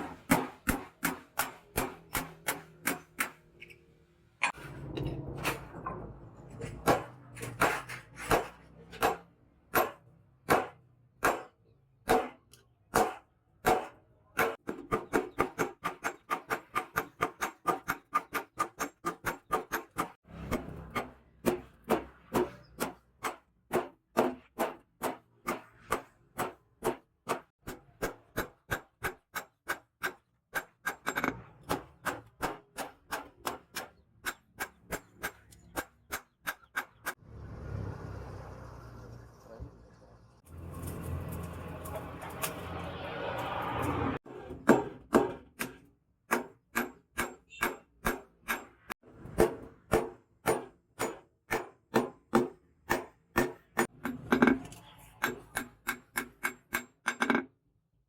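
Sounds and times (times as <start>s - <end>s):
hammer striking steel on anvil: 44.6s - 54.6s.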